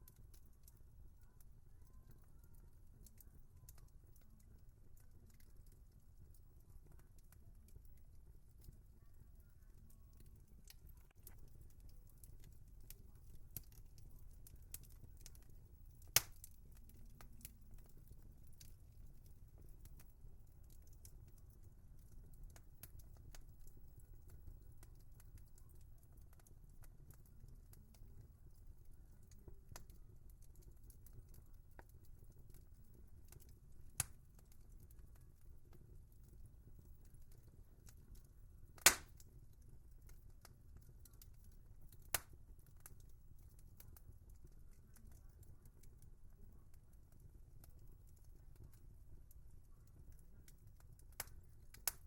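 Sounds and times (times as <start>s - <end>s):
wood fire crackling: 0.0s - 52.0s
loud fire pops: 16.1s - 16.4s, 38.8s - 39.2s.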